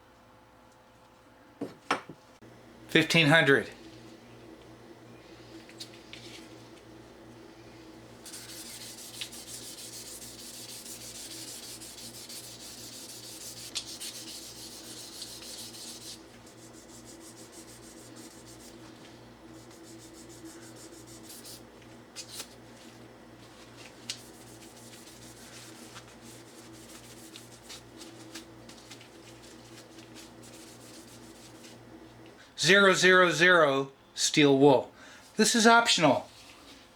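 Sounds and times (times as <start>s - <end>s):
sandpaper rubbing on a handle: 8.2s - 18.9s, 19.6s - 21.7s, 24.1s - 31.8s.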